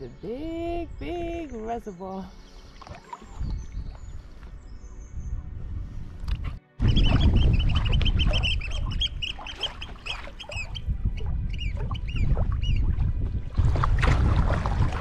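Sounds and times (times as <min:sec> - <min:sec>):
wind on microphone: 0:02.6 - 0:15.0
bird calling shrill notes: 0:06.8 - 0:12.9.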